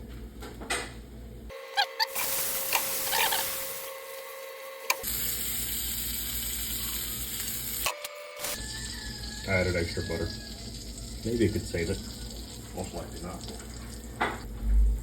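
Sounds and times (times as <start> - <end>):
butter sizzling in a frying pan: 5.0 - 7.8.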